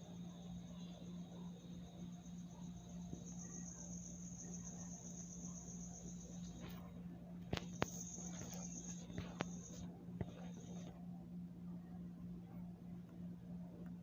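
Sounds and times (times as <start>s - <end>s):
crickets trilling: 0.0s - 10.9s
low steady hum: 0.0s - 14.0s.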